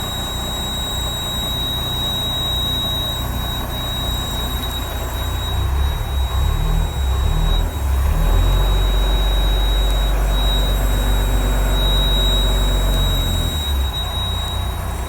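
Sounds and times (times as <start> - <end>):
thin high whine: 0.0 - 15.0
truck engine rumbling: 4.8 - 15.0.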